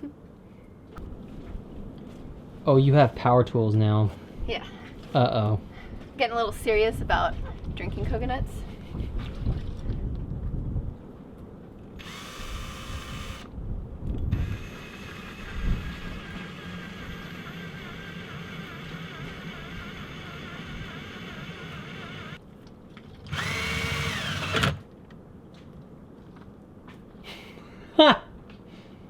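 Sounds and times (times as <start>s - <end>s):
power drill boring into coconut: 12.0s - 13.5s, 14.3s - 22.4s, 23.3s - 24.8s.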